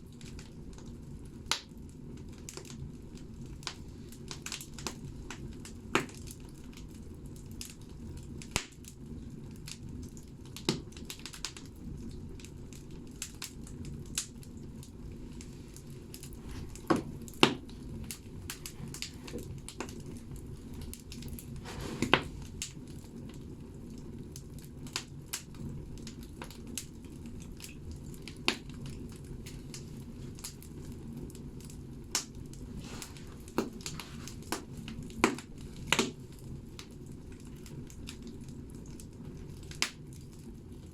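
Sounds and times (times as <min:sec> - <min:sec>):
fire burning in wood stove: 0:00.0 - 0:40.9
wood crackling and popping: 0:00.0 - 0:40.9.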